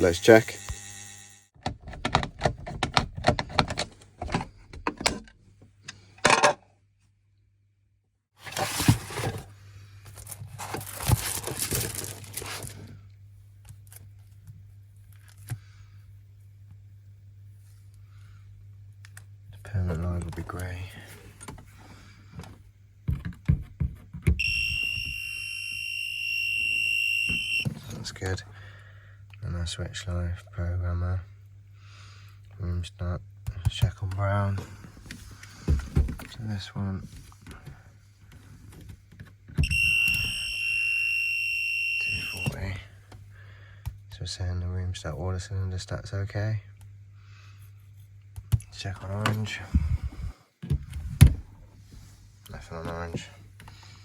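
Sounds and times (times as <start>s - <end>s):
voltage tester buzzer tone: 0.0s - 1.5s, 24.4s - 27.7s, 39.6s - 42.8s
handling clicks and knocks: 1.6s - 5.3s
faint low hum: 6.9s - 54.0s.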